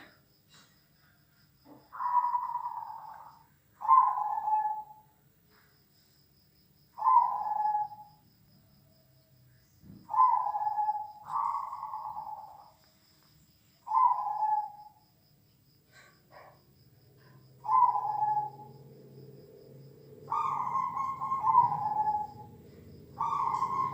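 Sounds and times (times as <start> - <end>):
dove cooing: 1.7 - 5.0, 7.0 - 8.2, 10.0 - 12.8, 13.8 - 15.0, 17.2 - 18.8, 20.2 - 23.9.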